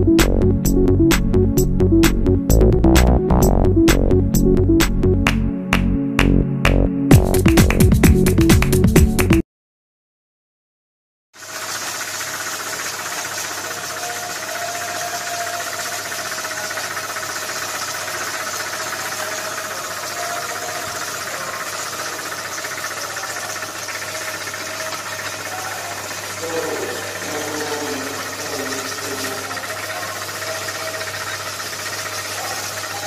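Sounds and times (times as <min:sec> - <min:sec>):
winding machine whirring: 0:11.4 - 0:33.0.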